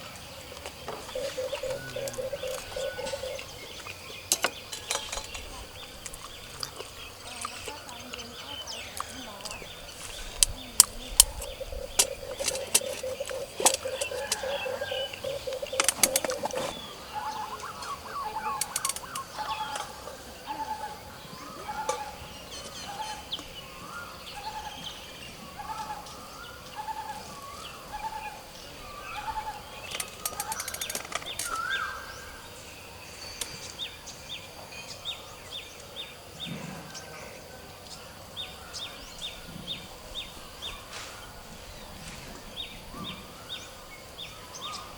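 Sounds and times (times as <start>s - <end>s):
high bird chirps: 0.8s - 20.0s
sharp clicks and knocks: 10.4s - 16.8s, 29.9s - 31.6s.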